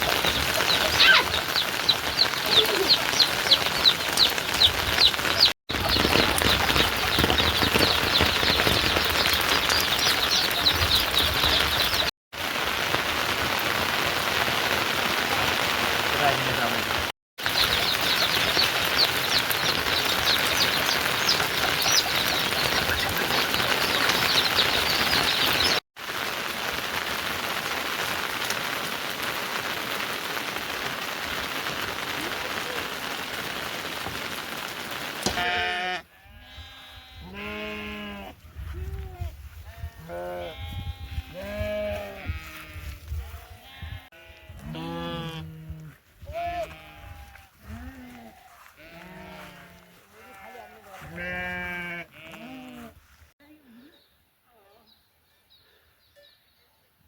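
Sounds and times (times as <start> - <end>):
heavy rain falling: 0.0 - 35.5
livestock bleating: 35.3 - 38.4, 39.7 - 53.0.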